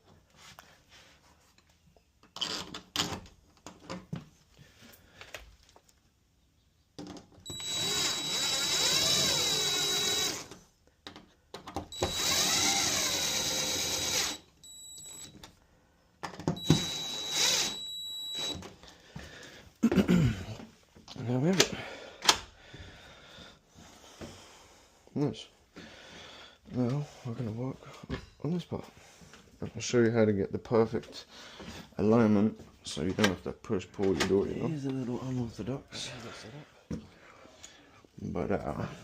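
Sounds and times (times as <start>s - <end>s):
cordless power drill running: 7.5s - 10.6s, 11.9s - 15.3s, 16.6s - 18.6s.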